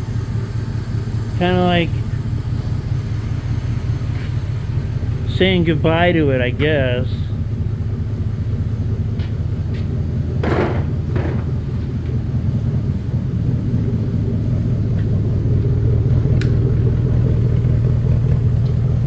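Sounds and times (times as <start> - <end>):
vehicle engine idling: 0.0 - 19.0
click: 16.4 - 16.6.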